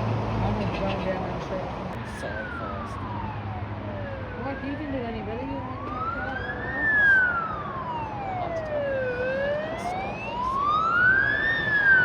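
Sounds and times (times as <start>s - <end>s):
traffic noise: 0.0s - 12.0s
emergency vehicle siren wailing: 1.9s - 12.0s.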